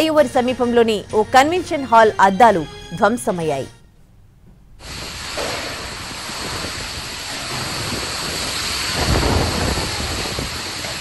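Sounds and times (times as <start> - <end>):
deep rumble: 4.8 - 11.0
heavy rain pouring: 4.8 - 11.0.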